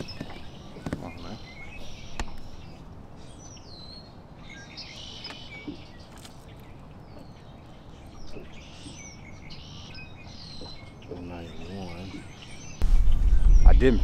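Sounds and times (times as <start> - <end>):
low outdoor background noise: 0.0 - 14.0
wild birds chirping: 0.0 - 14.0.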